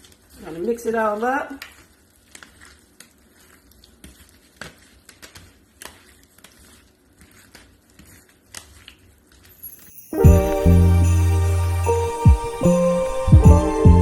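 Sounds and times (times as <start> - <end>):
clicks and scrapes of mixing food: 0.0 - 9.6.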